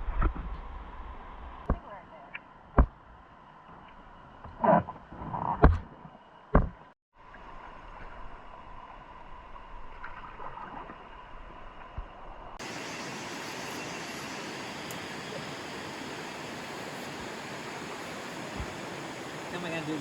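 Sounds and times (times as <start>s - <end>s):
river water flowing: 12.6s - 20.0s.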